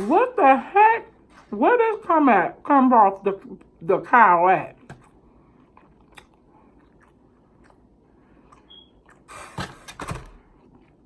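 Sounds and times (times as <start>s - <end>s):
chewing with wet mouth sounds: 4.7s - 9.3s.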